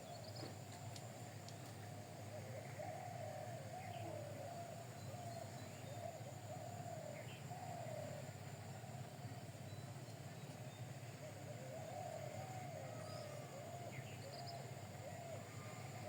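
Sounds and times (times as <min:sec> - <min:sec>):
low wavering bird coos: 0:01.6 - 0:16.0.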